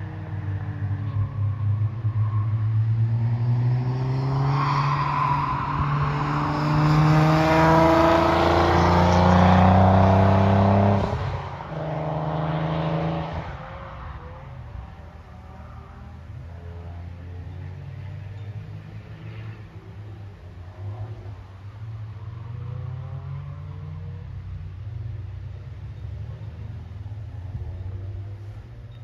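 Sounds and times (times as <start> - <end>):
car accelerating past: 0.0 - 28.8.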